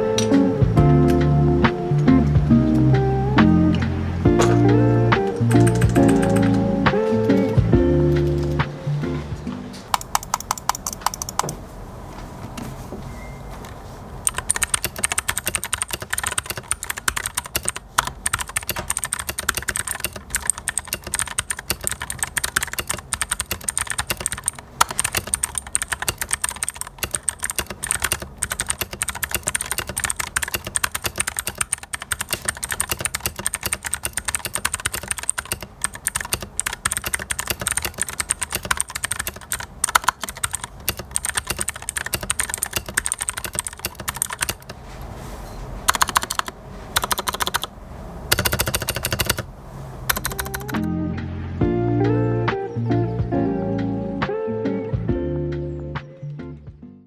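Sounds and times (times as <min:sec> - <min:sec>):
fast typing on clicky keyboard: 0:04.4 - 0:08.7, 0:09.9 - 0:11.6, 0:14.3 - 0:44.8, 0:45.9 - 0:47.7, 0:48.3 - 0:49.5, 0:50.1 - 0:50.8.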